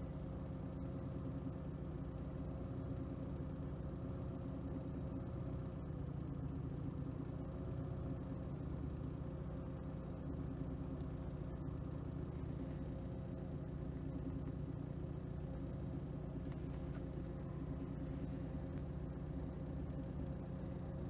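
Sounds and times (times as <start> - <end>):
petrol engine idling: 0.0 - 21.0.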